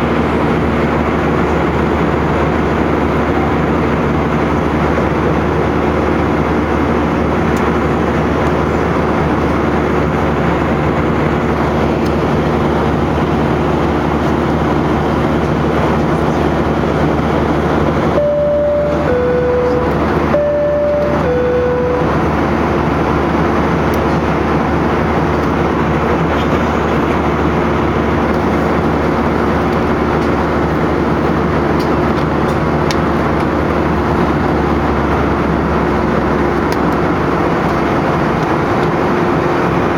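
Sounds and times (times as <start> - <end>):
airplane cabin drone: 0.0 - 39.9
two-note chime: 18.2 - 22.4.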